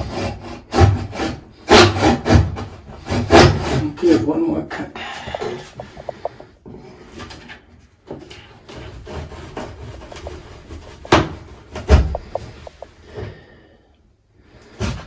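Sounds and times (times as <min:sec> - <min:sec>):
scraping and rasping on wall: 0:00.0 - 0:04.4, 0:05.2 - 0:13.6, 0:14.5 - 0:15.0
sharp knocks: 0:05.2 - 0:06.5, 0:10.1 - 0:12.9.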